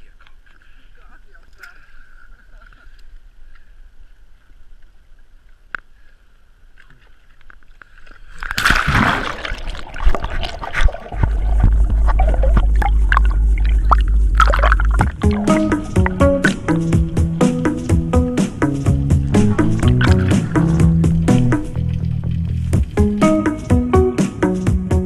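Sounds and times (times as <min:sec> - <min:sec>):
water sloshing and splashing: 0:08.0 - 0:23.2
low rumble: 0:10.4 - 0:23.2.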